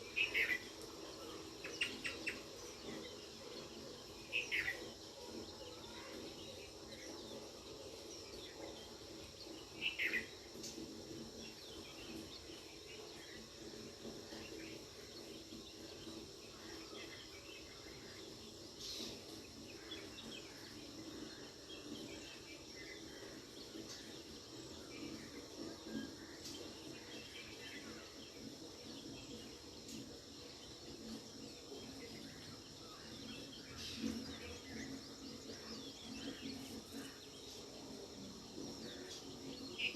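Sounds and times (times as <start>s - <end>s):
insects humming: 0.0s - 39.9s.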